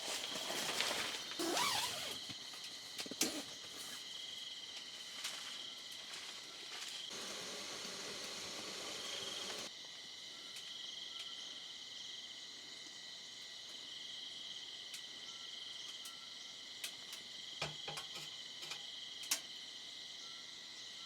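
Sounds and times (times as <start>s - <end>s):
insects trilling: 0.0s - 21.0s
sharp clicks and light knocks: 16.8s - 19.5s
faint steady tone: 20.1s - 21.0s.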